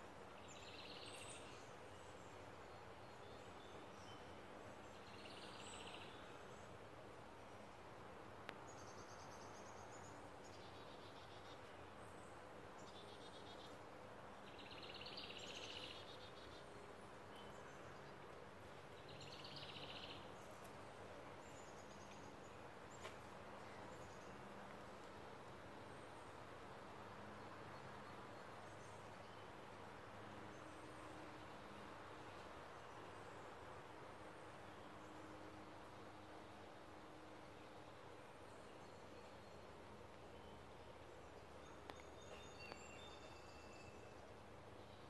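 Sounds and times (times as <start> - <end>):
steady background hiss: 0.0 - 45.0
songbirds trilling: 8.6 - 25.1.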